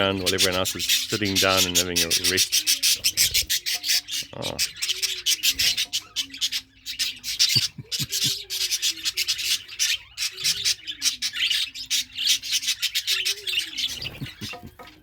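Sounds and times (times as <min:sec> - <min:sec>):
budgerigars chattering: 0:00.0 - 0:15.0.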